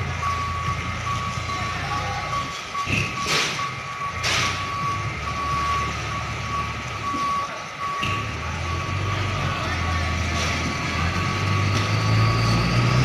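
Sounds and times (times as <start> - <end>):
diesel engine running: 0.0 - 13.0
truck back-up alarm beeping: 0.0 - 13.0.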